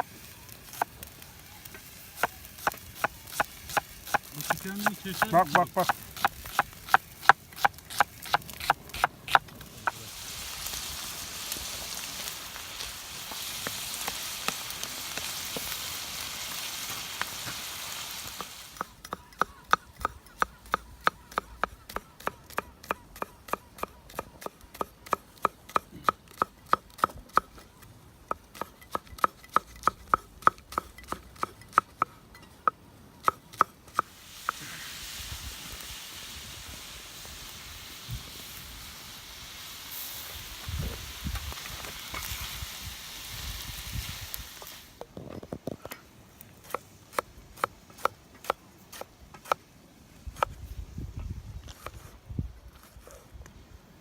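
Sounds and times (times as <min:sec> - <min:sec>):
meat sizzling in a pan: 0:00.0 - 0:18.9, 0:34.0 - 0:45.0.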